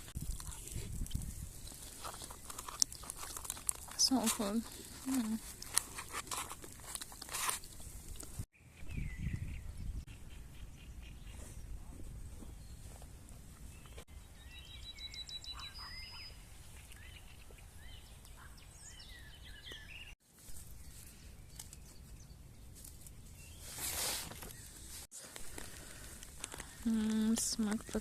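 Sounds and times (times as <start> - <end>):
small birds chirping and singing: 8.6 - 24.9, 25.7 - 28.0.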